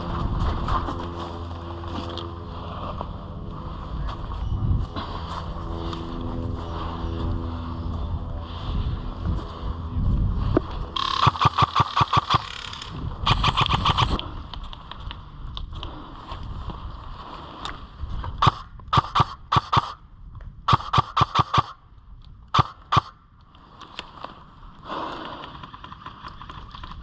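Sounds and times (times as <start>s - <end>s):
airsoft gun single shots: 11.0s - 12.6s, 18.4s - 20.0s, 20.7s - 21.8s, 22.5s - 23.2s
airsoft gun full-auto bursts: 11.0s - 14.2s, 18.4s - 20.0s, 20.7s - 21.8s, 22.5s - 23.2s.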